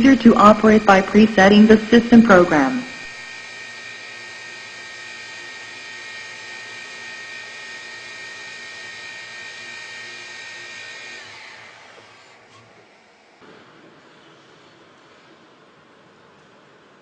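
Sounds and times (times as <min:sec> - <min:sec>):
lathe high-pitched whine: 0:00.0 - 0:13.4.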